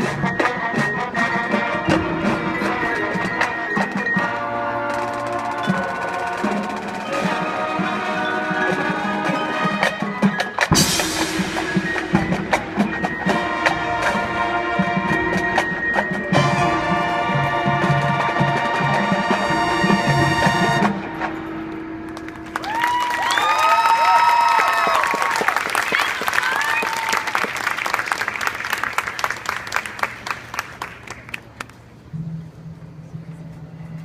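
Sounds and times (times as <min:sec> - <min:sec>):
brass and woodwind chords: 0:00.0 - 0:21.9
percussion strikes: 0:00.0 - 0:22.9, 0:32.1 - 0:34.0.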